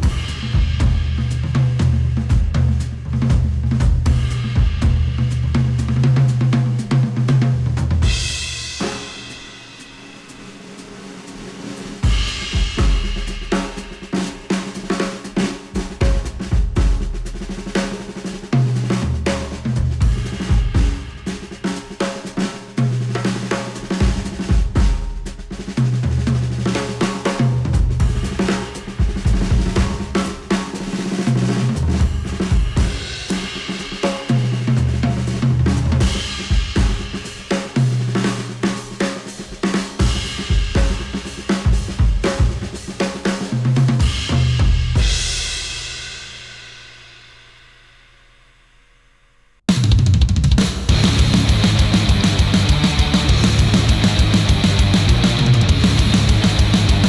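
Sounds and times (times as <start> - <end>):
drum kit: 0.0 - 49.0, 49.6 - 57.0
deep repeating bass line: 50.9 - 57.0.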